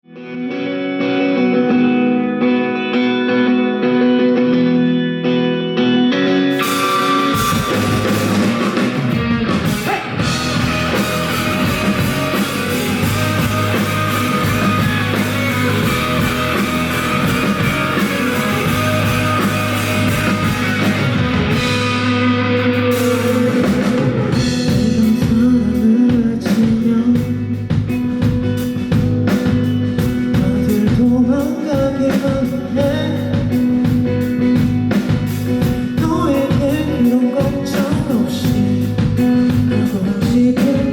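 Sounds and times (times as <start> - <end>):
guitar chords ringing: 0.1 - 26.1
live rock band playing: 0.1 - 40.9.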